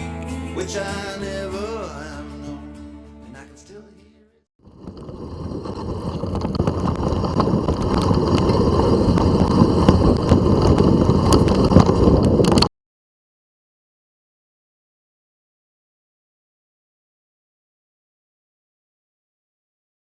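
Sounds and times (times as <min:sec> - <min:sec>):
tyres rolling over dirt: 0:04.6 - 0:12.7
bike clicks and rattles: 0:04.7 - 0:12.7
wind buffeting microphone: 0:04.7 - 0:12.7.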